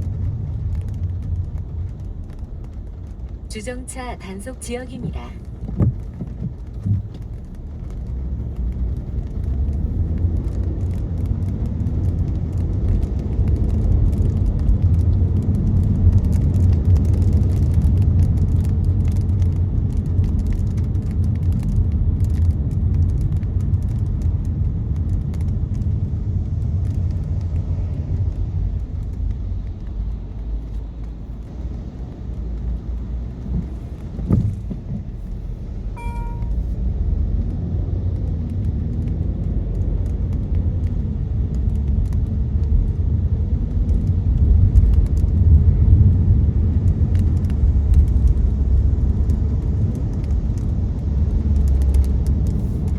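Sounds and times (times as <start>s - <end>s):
raindrops ticking on glass: 0.0s - 3.7s, 5.4s - 35.1s, 37.4s - 52.9s
road and tyre rumble in car: 0.0s - 52.9s
thump: 33.6s - 34.9s
short electronic beep: 36.0s - 36.7s.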